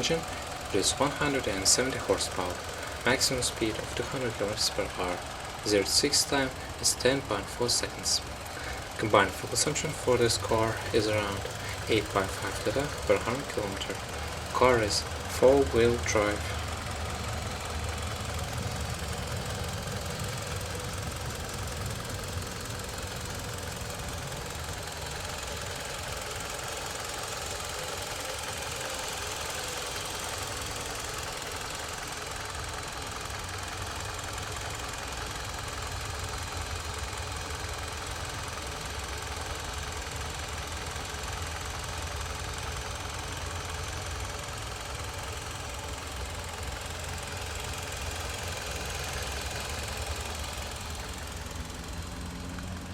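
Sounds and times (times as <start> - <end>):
car engine idling: 0.0 - 52.9.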